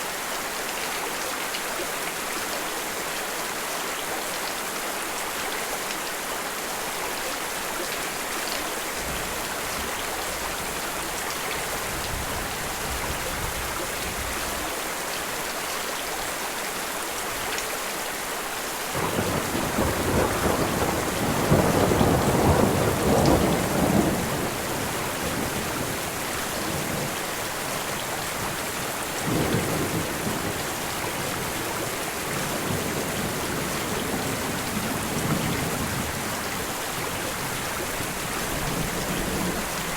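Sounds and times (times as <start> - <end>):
steady rain falling: 0.0 - 39.9
thunder rumbling: 19.0 - 27.2.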